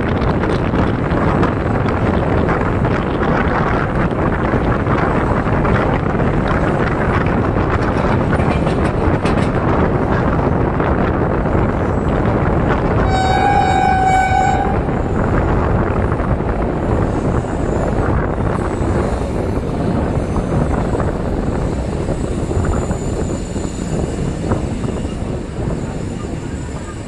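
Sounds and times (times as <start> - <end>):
train wheels rumbling on track: 0.0 - 27.0
train horn: 13.0 - 15.2.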